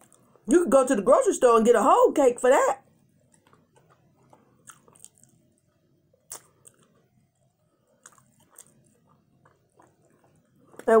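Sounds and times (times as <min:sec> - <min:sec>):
chewing with wet smacks: 0:03.3 - 0:05.6, 0:06.2 - 0:11.0.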